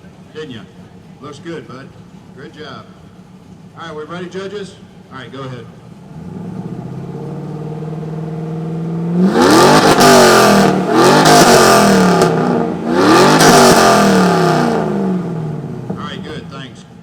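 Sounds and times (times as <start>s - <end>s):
car engine idling: 0.0s - 17.0s
car engine revving: 6.0s - 17.0s.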